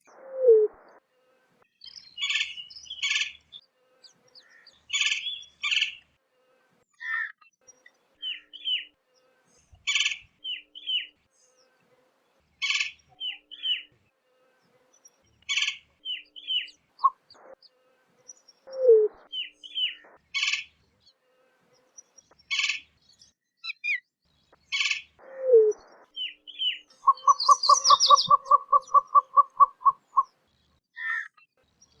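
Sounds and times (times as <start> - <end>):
bird chirping: 0.0 - 32.0
low falling bird notes: 27.0 - 30.2.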